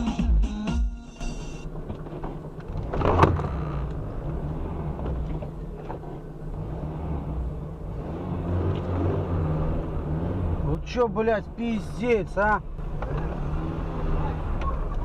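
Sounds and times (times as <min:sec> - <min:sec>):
car cabin rumble: 0:01.3 - 0:13.5.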